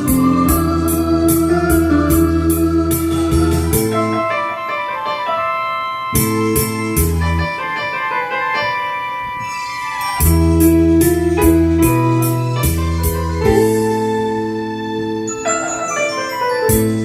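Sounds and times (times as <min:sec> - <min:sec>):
bass line: 0:00.0 - 0:04.2, 0:10.2 - 0:15.8, 0:16.6 - 0:17.0
electric piano chords: 0:00.0 - 0:17.0.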